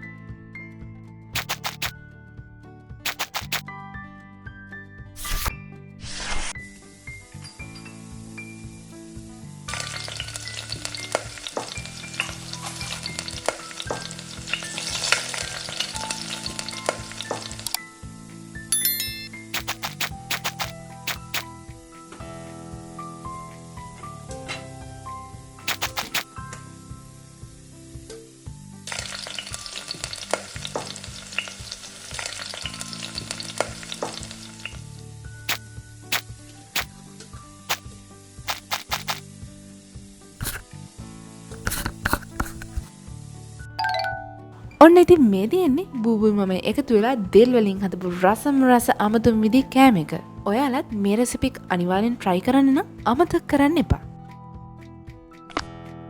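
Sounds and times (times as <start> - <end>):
utensil scraping and clicking: 1.4 - 1.9, 3.1 - 3.6, 5.2 - 5.5, 19.6 - 21.5, 25.7 - 26.2, 36.1 - 36.9, 38.5 - 39.2, 40.4 - 40.6, 41.5 - 42.9
food sizzling in a pan: 5.2 - 18.7, 19.4 - 43.8.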